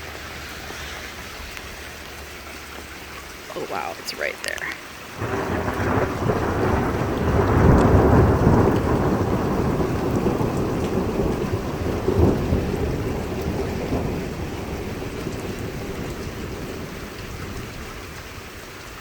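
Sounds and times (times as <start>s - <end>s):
heavy rain: 0.0s - 19.0s
thunder rumbling: 5.1s - 19.0s.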